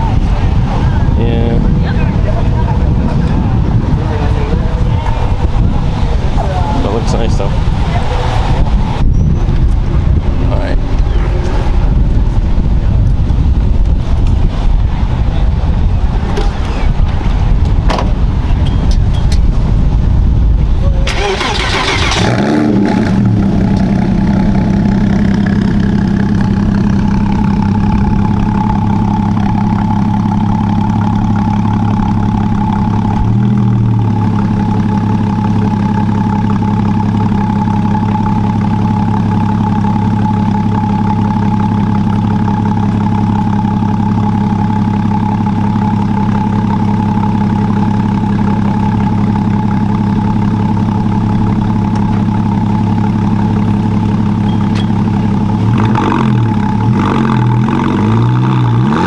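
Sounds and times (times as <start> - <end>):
car engine idling: 0.0 - 59.0
engine rev blip: 20.8 - 42.4, 54.4 - 59.0.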